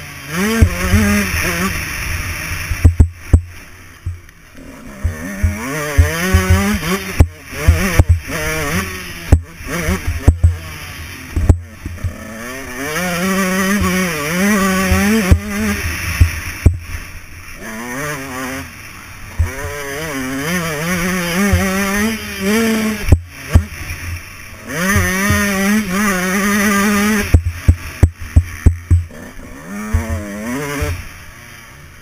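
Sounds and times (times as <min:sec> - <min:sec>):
dirt bike engine revving: 0:00.0 - 0:32.0
sharp knocks: 0:02.8 - 0:04.2, 0:27.3 - 0:29.1.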